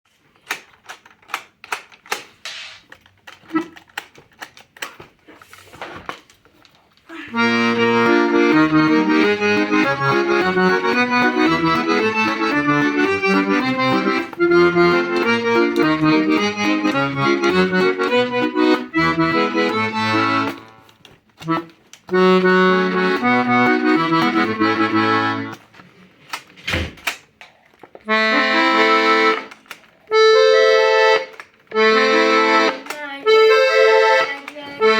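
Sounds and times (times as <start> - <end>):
sharp clicks and knocks: 0.3 - 5.2, 26.3 - 28.2
accordion playing: 7.3 - 25.8, 28.0 - 34.9.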